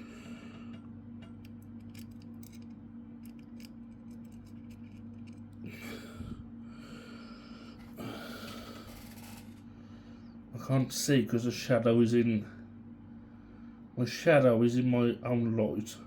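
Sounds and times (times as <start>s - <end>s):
low electrical hum: 0.0s - 16.0s
screwdriver clicking on plastic: 1.4s - 5.5s.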